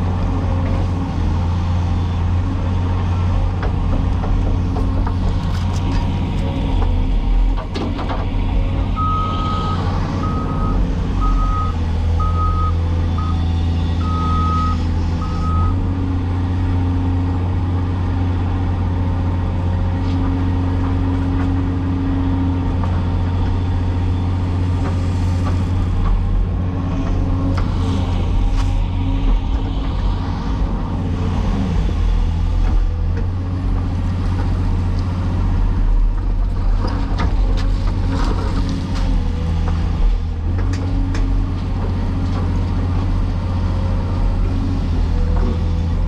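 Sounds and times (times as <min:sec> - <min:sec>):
excavator diesel engine: 0:00.0 - 0:46.0.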